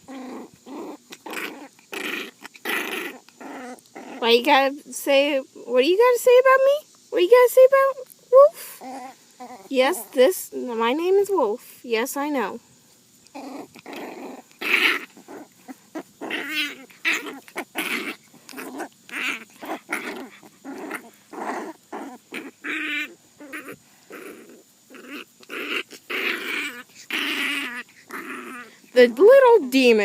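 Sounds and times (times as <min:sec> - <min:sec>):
puppy growling: 0:00.0 - 0:04.7, 0:08.4 - 0:10.4, 0:13.2 - 0:30.0.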